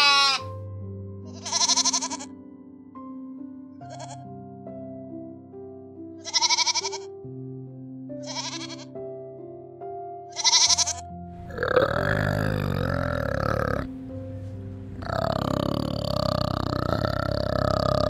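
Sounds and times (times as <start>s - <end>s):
young goat bleating: 0.0s - 0.5s, 1.3s - 2.3s, 3.9s - 4.2s, 6.2s - 7.1s, 8.2s - 8.9s, 10.3s - 11.1s
background music: 0.0s - 18.0s
orangutan deep rough call: 11.4s - 13.9s, 14.9s - 18.0s.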